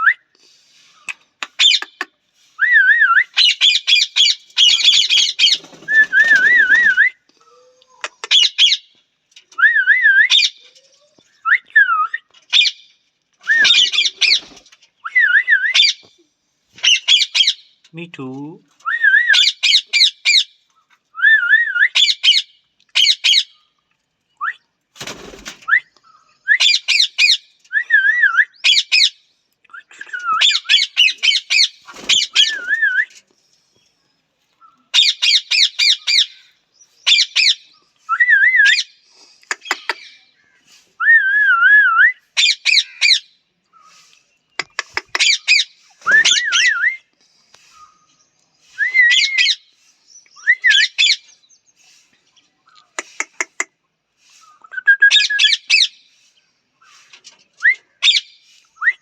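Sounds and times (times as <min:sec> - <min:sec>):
parrot squawking: 0:30.4 - 0:32.8, 0:34.9 - 0:36.4, 0:39.5 - 0:40.2, 0:42.4 - 0:43.3, 0:44.6 - 0:46.7.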